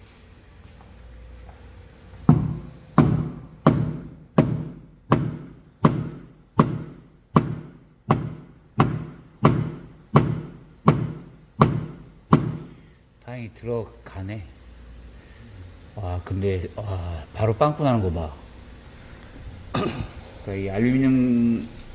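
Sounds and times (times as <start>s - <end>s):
hammer striking metal tool: 2.3s - 12.7s.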